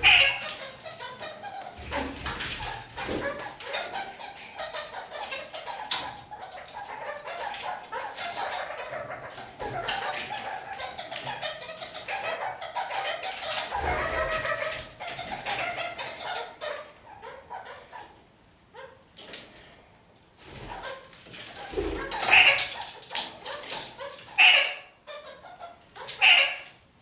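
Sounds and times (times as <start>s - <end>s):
parakeets chattering and calling: 0.0s - 19.0s, 20.4s - 26.8s.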